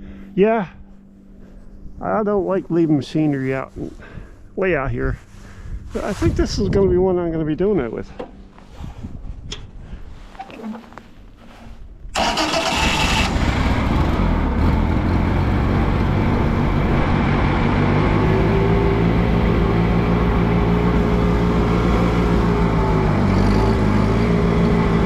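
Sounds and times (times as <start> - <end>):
tractor engine starting and running: 10.3 - 25.0.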